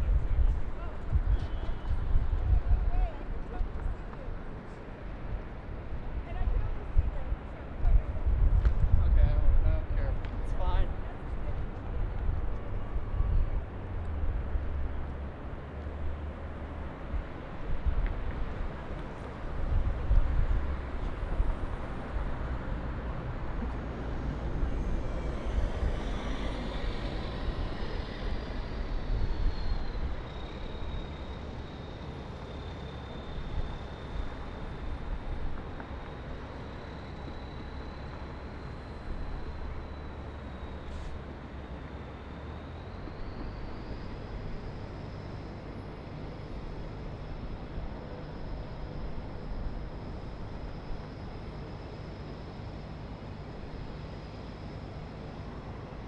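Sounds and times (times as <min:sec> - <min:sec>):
distant city traffic: 0:00.0 - 0:56.0
thin high-pitched whine: 0:17.9 - 0:56.0.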